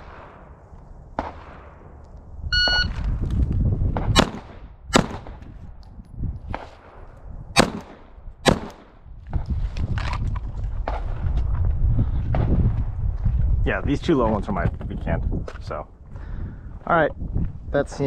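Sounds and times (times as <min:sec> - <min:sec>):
shot timer beep: 0:02.5 - 0:03.0
pistol shots echoing: 0:04.1 - 0:05.4, 0:07.6 - 0:09.0.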